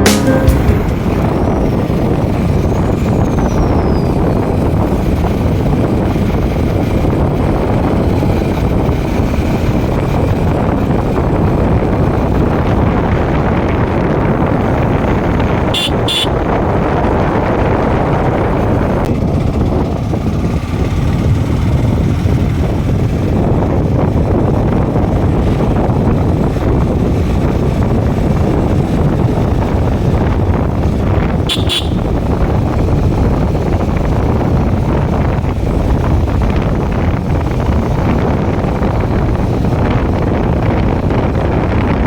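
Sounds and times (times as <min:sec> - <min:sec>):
short high beeps: 0:00.0 - 0:01.5
motorcycle engine and road noise: 0:00.0 - 0:42.0.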